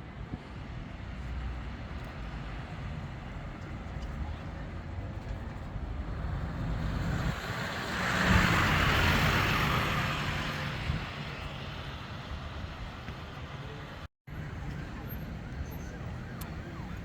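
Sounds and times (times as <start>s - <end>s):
vehicle passing by: 6.0s - 12.0s.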